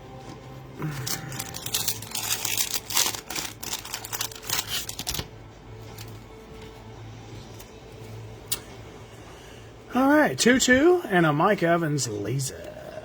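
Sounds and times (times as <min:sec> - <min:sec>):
packaging tearing and crinkling: 0:00.8 - 0:05.3.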